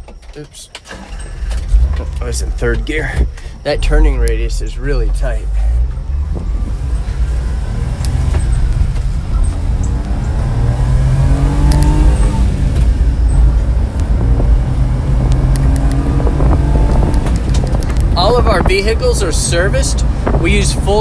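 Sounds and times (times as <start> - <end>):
small truck engine accelerating: 0.0 - 20.2
road noise: 0.0 - 21.0.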